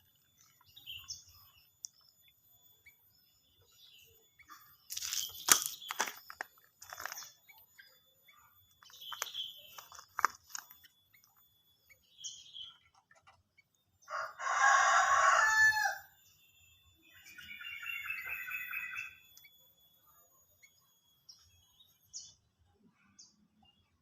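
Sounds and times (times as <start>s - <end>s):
small bird chirps and clicks: 0.1s - 13.9s, 17.1s - 22.4s
rooster crowing: 14.1s - 16.1s.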